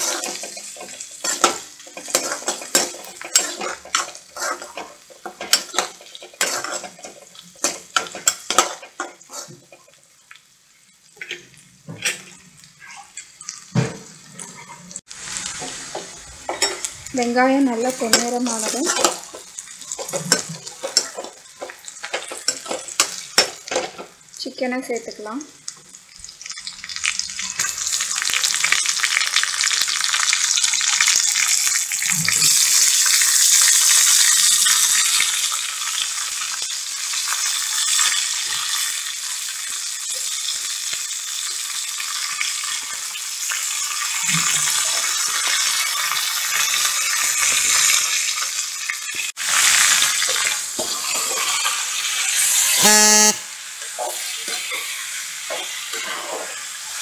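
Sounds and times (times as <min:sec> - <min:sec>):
ladle scraping pan: 0:00.0 - 0:09.6
chicken sizzling in oil: 0:00.0 - 0:57.0
horn-like tone: 0:52.7 - 0:53.6.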